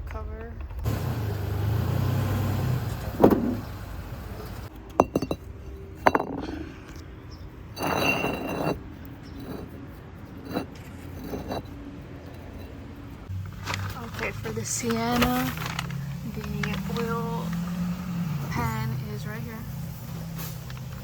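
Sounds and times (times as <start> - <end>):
scraping rattle: 7.7 - 12.8.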